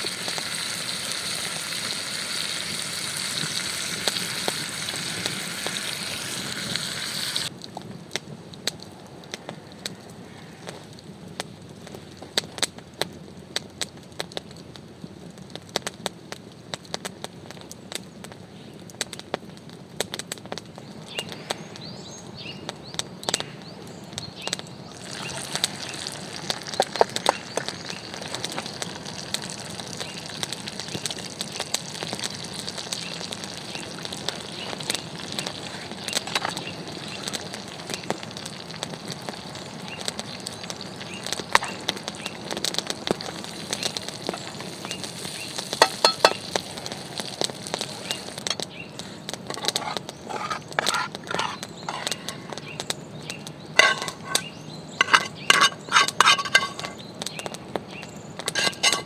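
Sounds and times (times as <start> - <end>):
steady hiss: 0.0 - 12.6, 24.5 - 57.1
campfire crackling and popping: 0.0 - 22.0, 22.7 - 59.0.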